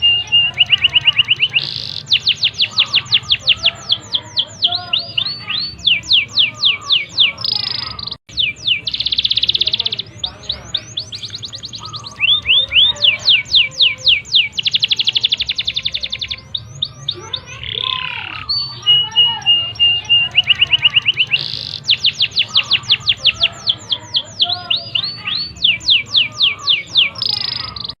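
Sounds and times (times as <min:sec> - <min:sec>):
canary singing: 0:00.0 - 0:28.0.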